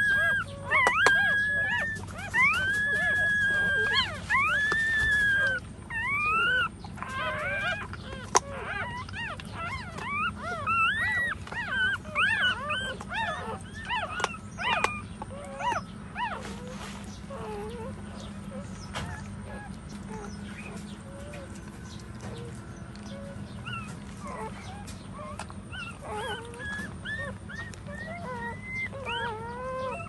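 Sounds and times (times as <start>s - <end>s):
puppies whining and squealing: 0.0s - 30.0s.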